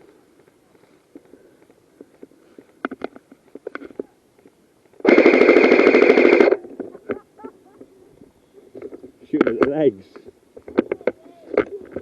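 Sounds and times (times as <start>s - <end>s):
steady whine: 4.9s - 9.6s
airsoft rifle full-auto burst: 5.0s - 6.7s.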